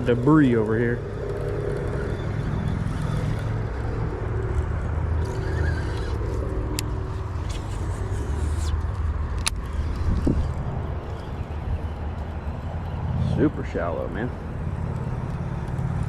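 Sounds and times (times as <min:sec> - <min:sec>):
wind buffeting microphone: 0:03.5 - 0:16.0.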